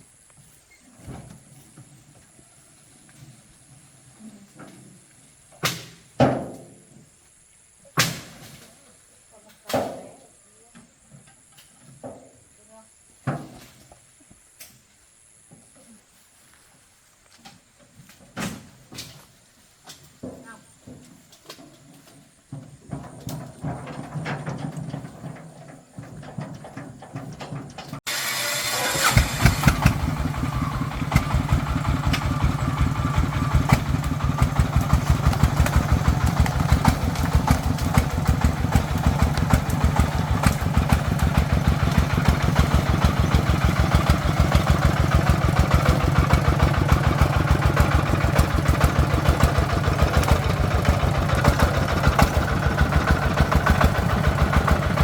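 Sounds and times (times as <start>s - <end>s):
diesel engine starting and chugging: 23.6s - 55.0s.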